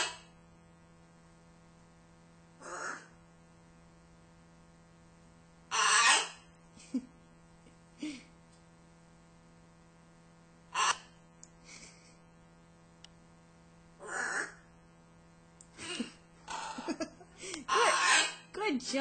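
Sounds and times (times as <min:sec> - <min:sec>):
macaws raspy calls: 0:00.0 - 0:00.3, 0:02.6 - 0:03.2, 0:05.7 - 0:06.5, 0:10.7 - 0:11.2, 0:14.0 - 0:14.7, 0:17.7 - 0:18.5.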